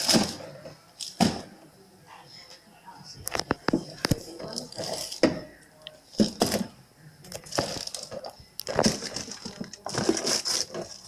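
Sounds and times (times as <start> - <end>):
frozen items clattering: 7.3 - 11.0
plastic packaging crinkling: 7.3 - 11.0.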